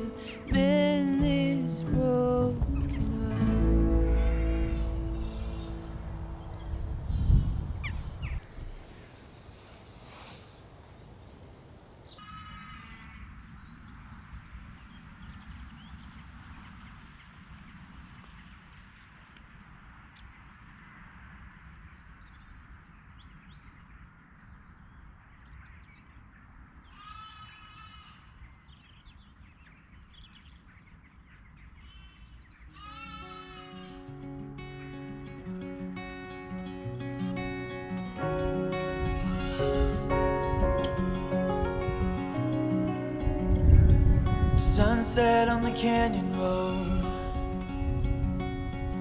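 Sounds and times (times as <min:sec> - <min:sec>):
small birds singing: 0:00.0 - 0:09.4, 0:37.4 - 0:49.0
low rumble of wind: 0:00.0 - 0:12.2, 0:37.4 - 0:49.0.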